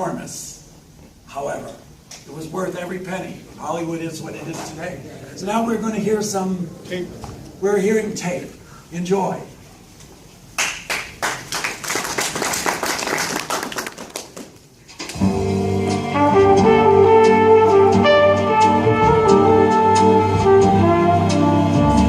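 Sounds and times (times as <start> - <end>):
brass band playing chords: 15.2 - 22.0.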